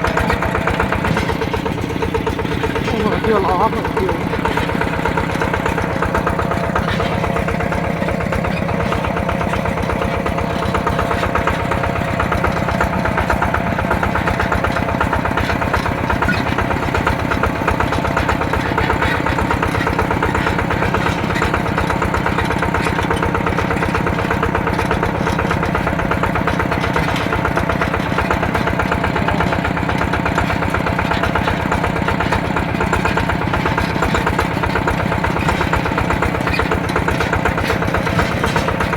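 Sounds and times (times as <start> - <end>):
diesel tractor engine running: 0.0 - 38.9.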